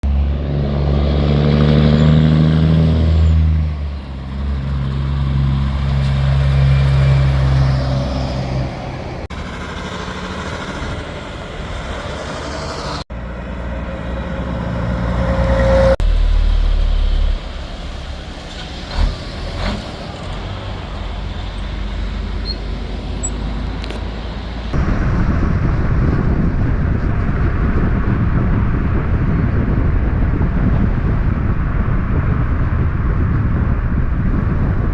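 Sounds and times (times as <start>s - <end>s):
semi truck diesel engines: 0.0s - 34.9s.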